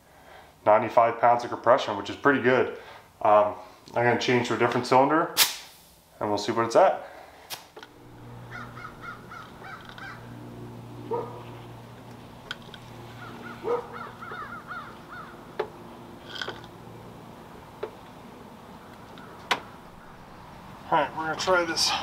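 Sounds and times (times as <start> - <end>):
low steady hum: 7.1 - 22.0
bird chirping: 8.4 - 10.4, 12.7 - 15.8, 18.5 - 20.7.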